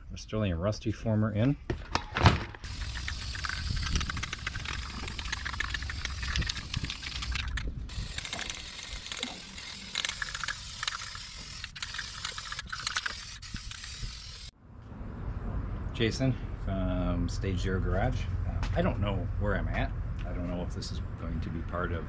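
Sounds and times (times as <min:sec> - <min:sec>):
ratchet-like mechanical clicking: 0:02.6 - 0:14.5.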